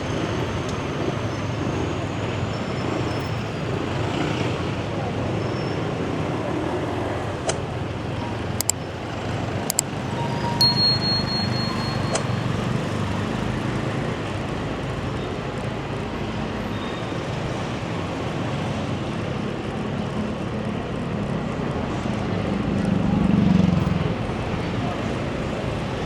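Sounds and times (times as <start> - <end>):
road noise: 0.0 - 26.0
brief high tone: 10.5 - 12.9.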